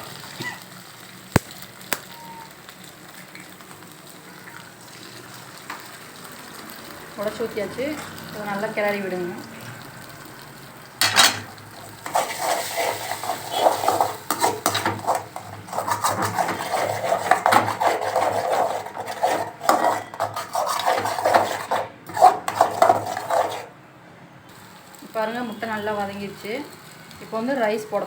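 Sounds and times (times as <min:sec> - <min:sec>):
spatula scraping a wok: 0:11.0 - 0:23.8.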